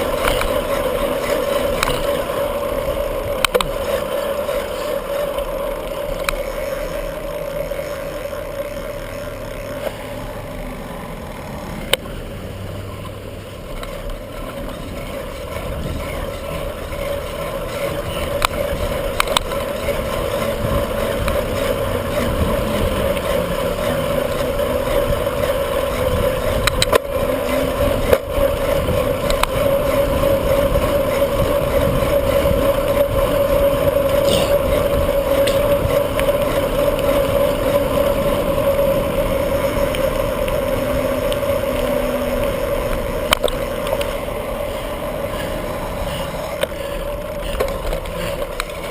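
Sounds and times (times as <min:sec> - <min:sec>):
rolling tyre noise: 0:00.0 - 0:48.9
wind on microphone: 0:15.5 - 0:17.0.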